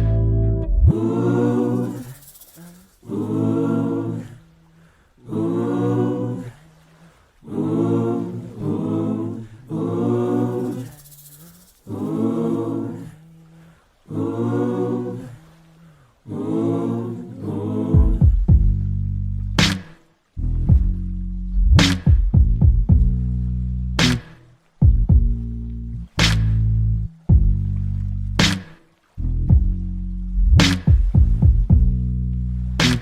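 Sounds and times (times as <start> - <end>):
wordless sung phrases: 0.0 - 19.0.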